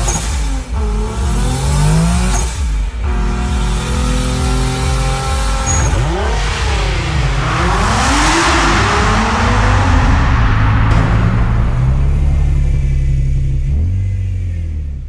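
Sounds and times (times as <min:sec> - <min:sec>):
car engine revving: 0:00.0 - 0:15.0
loud rushing hiss: 0:06.0 - 0:13.7.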